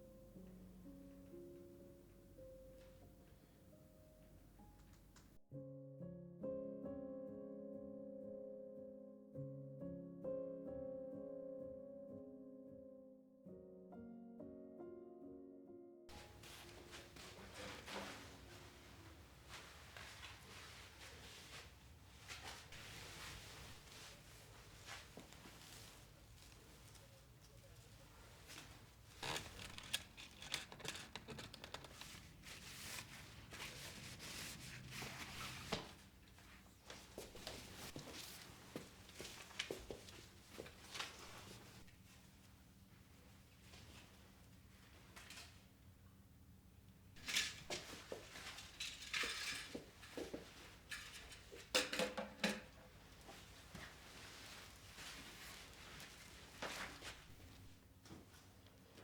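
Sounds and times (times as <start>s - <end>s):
material rustling: 16.1s - 36.1s, 53.3s - 57.7s
objects knocking and clinking: 48.6s - 50.0s.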